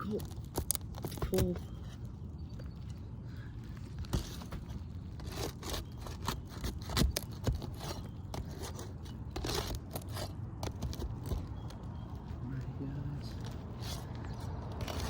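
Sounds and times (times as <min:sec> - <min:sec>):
hand tool scraping roof shingles: 0:04.0 - 0:11.8, 0:13.4 - 0:15.0.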